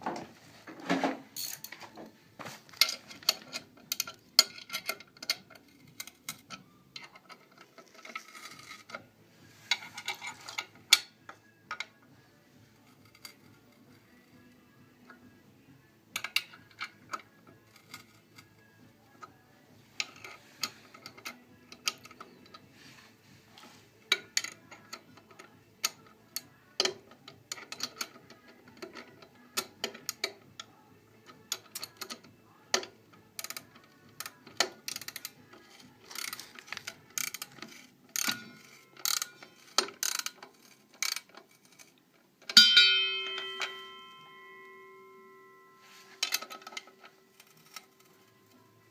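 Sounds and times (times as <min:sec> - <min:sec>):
metallic clicks and knocks: 0:02.7 - 0:09.0, 0:16.1 - 0:18.5, 0:24.1 - 0:48.9
struck metal ringing: 0:42.6 - 0:45.8.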